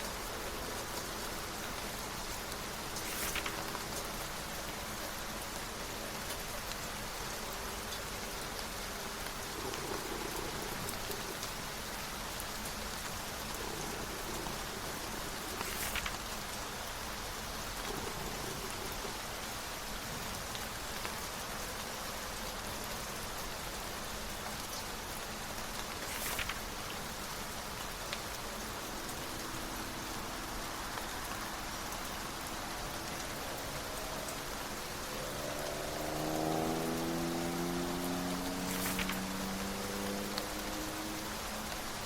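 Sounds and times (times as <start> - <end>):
steady rain falling: 0.0 - 42.0
book page turning: 2.9 - 4.0, 13.9 - 16.3, 26.0 - 26.7, 38.6 - 39.2.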